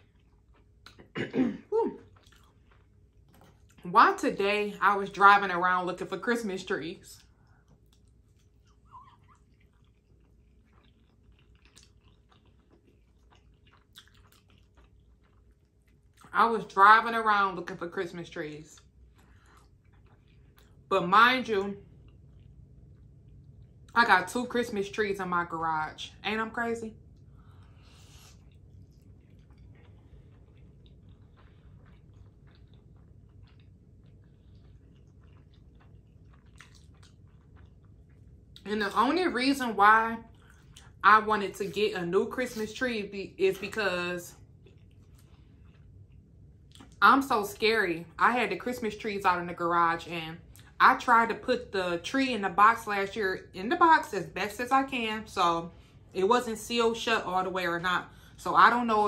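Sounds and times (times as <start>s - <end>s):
faint chewing: 0.0s - 1.1s, 2.0s - 3.9s, 6.6s - 16.4s, 17.6s - 20.9s, 21.8s - 24.0s, 27.1s - 38.7s, 40.2s - 41.0s, 43.5s - 47.0s.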